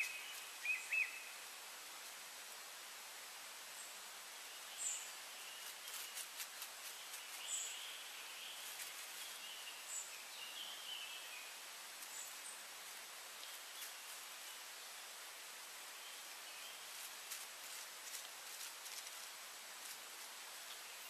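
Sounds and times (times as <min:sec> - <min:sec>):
thin wavering birdsong: 0:00.0 - 0:01.4, 0:03.8 - 0:15.2, 0:15.8 - 0:19.0
steady soft hiss: 0:00.0 - 0:21.0.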